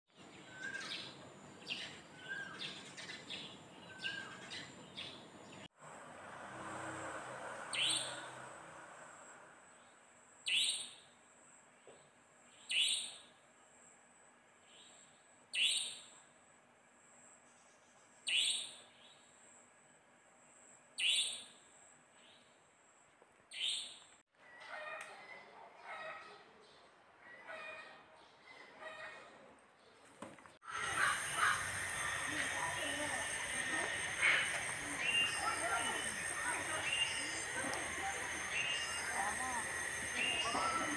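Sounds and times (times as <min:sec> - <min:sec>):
small birds chirping: 0:11.8 - 0:13.4, 0:29.4 - 0:40.9.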